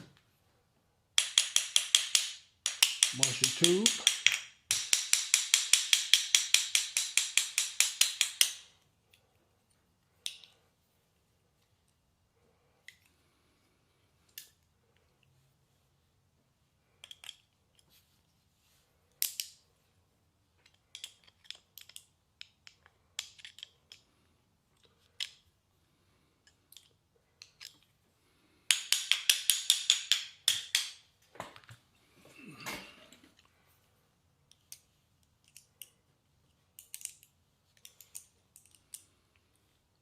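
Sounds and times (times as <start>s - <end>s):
metal parts clicking on workbench: 36.8s - 39.1s.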